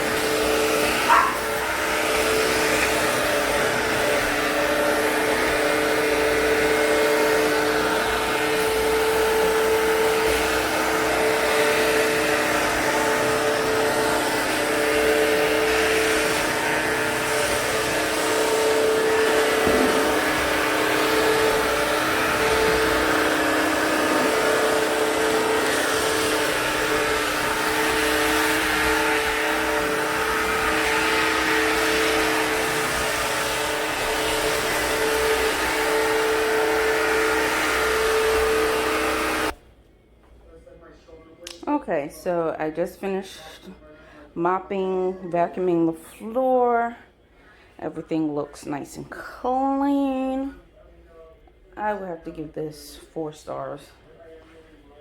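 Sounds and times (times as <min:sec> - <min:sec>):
vacuum mop motor whine: 0:00.0 - 0:39.6.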